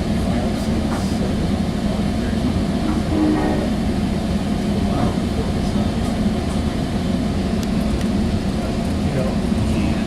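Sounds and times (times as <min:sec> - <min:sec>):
train coach rumble on track: 0:00.0 - 0:10.0.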